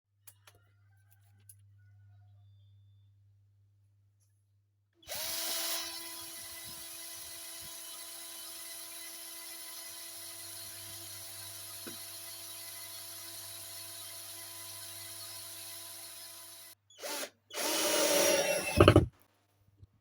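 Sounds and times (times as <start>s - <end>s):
cordless drill whine: 5.1s - 8.6s, 13.9s - 19.1s.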